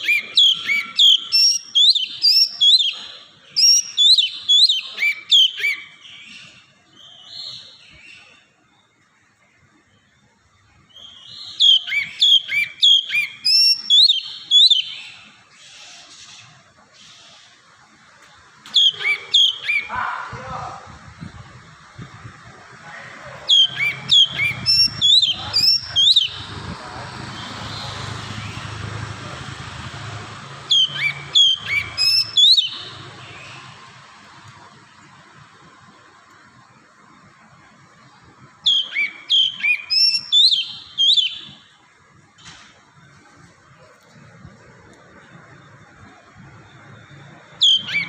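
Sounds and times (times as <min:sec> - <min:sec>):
bird whistled song: 0:00.0 - 0:08.5, 0:10.9 - 0:16.0, 0:18.7 - 0:20.0, 0:23.4 - 0:26.6, 0:30.7 - 0:33.7, 0:38.6 - 0:41.8, 0:46.8 - 0:48.0.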